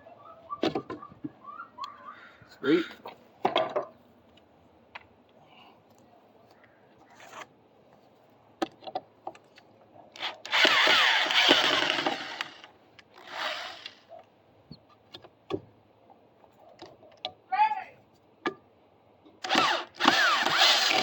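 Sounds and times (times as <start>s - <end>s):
power drill backing out screws: 10.2s - 14.0s, 19.4s - 21.0s.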